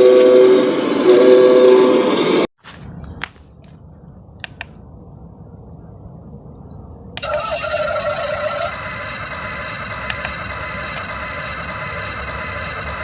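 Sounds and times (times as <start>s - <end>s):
short clicks: 4.4s - 4.8s, 10.0s - 11.2s
electronic engine sound: 7.2s - 13.0s.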